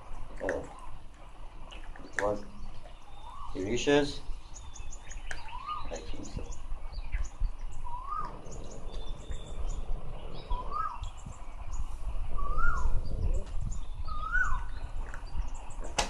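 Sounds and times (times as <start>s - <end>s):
bird whistling rising and falling: 5.4s - 5.9s, 7.9s - 8.7s, 10.3s - 11.1s, 12.4s - 13.2s, 14.0s - 14.8s.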